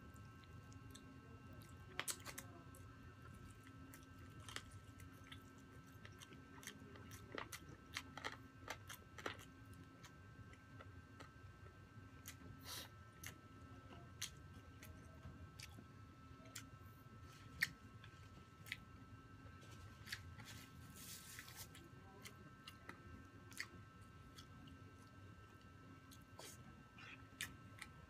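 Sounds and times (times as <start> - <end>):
person chewing food: 0.1 - 28.0.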